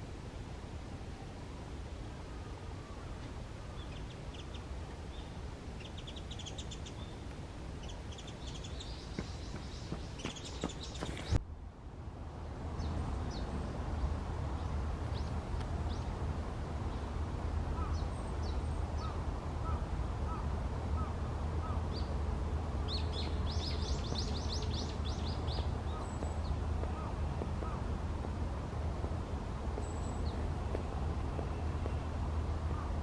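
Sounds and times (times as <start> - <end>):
small birds calling: 2.3 - 11.4, 22.9 - 27.8.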